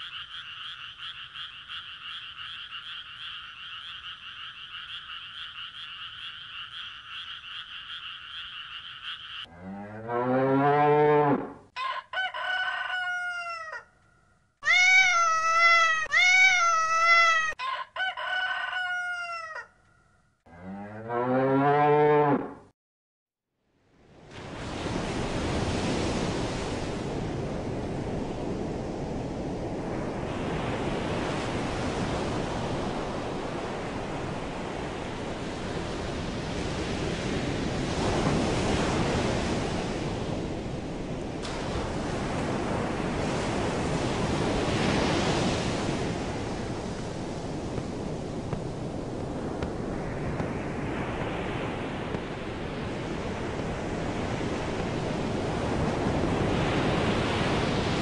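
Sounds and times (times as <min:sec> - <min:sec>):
ocean waves washing in: 0:23.9 - 0:58.0.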